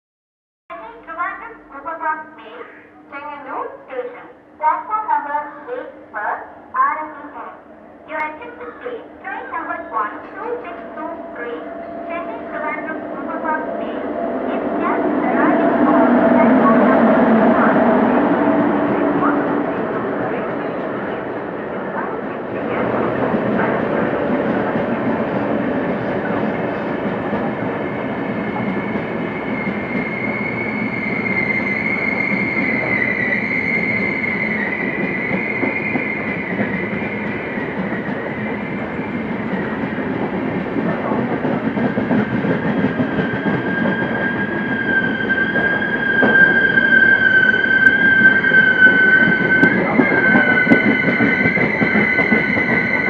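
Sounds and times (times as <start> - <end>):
train coaches rumbling: 0.7 - 53.0
high squealing tones: 7.7 - 17.9, 27.5 - 39.8, 43.3 - 53.0.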